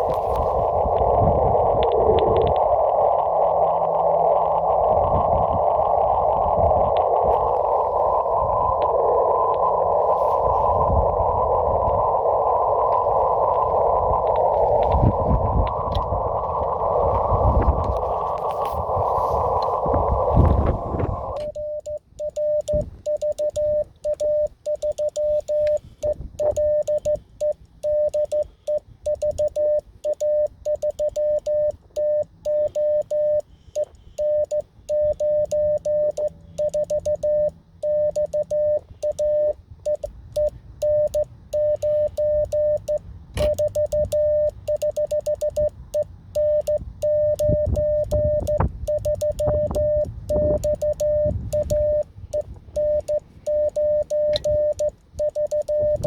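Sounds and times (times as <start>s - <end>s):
morse code tone: 16.6s - 56.0s.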